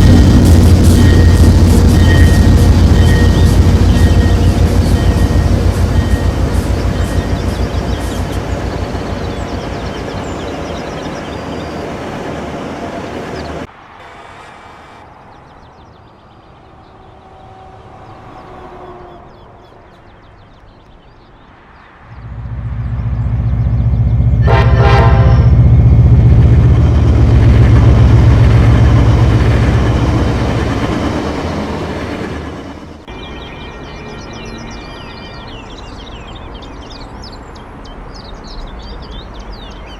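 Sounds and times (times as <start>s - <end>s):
diesel train rumble: 0.0s - 15.6s, 16.4s - 20.4s, 21.5s - 39.9s
train rumbling past: 0.0s - 20.5s, 21.2s - 39.9s
train horn: 22.3s - 26.3s.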